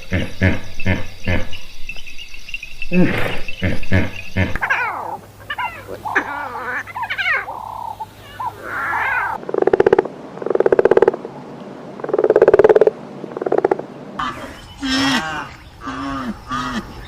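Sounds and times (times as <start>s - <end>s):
loud pulsed croaking calls: 0.0s - 11.3s, 12.0s - 17.0s
high chirping animal calls: 2.8s - 9.4s.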